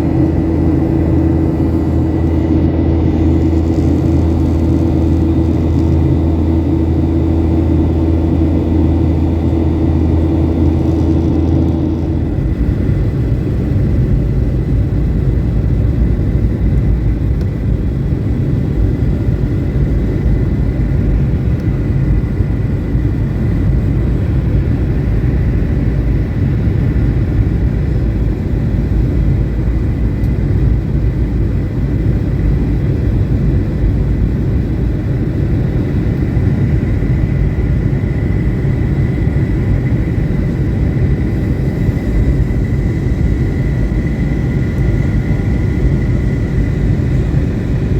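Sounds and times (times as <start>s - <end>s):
faint high whine: 0.0s - 31.0s, 34.2s - 47.9s
airliner cabin engine rumble: 0.0s - 47.9s.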